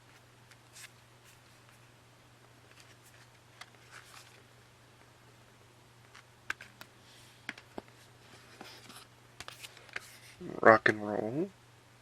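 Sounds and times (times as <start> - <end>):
low steady hum: 0.0 - 12.0
cd sleeves rustling and tapping: 6.0 - 10.1.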